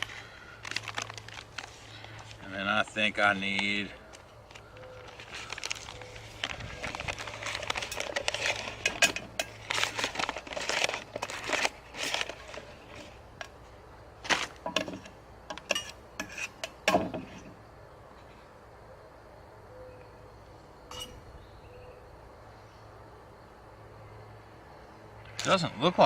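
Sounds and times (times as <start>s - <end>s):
popcorn bag crinkling: 0.0s - 13.6s.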